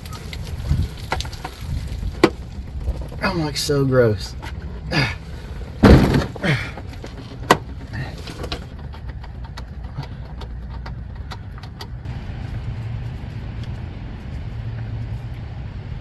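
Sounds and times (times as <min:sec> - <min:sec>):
low steady hum: 0:02.0 - 0:16.0
loud thud: 0:05.8 - 0:06.8.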